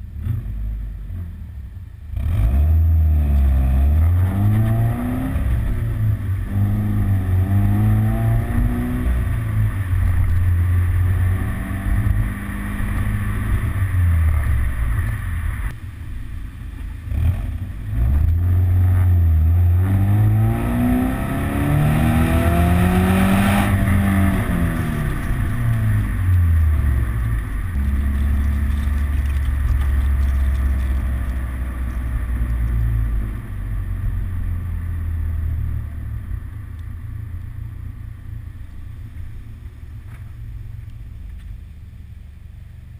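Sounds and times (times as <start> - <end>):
car engine revving: 2.1 - 15.8, 17.0 - 36.6.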